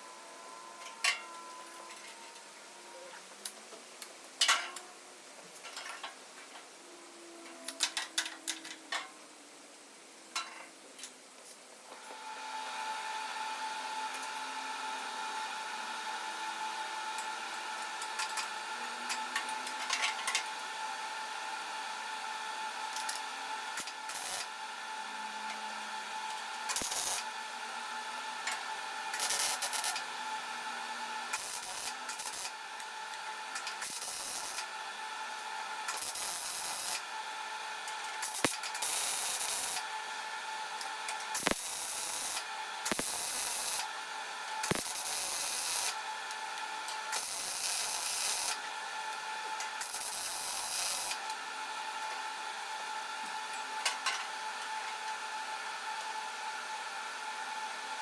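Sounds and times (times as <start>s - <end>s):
small power tool whining: 41.1s - 43.9s, 44.6s - 46.4s.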